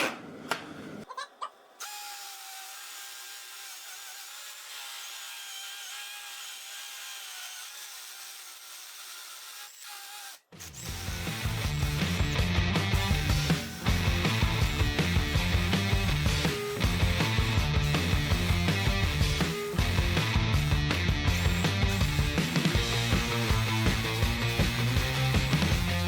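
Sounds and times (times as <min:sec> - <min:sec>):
hammer drill whining into brick: 0:01.8 - 0:26.0
rock music: 0:10.9 - 0:26.0.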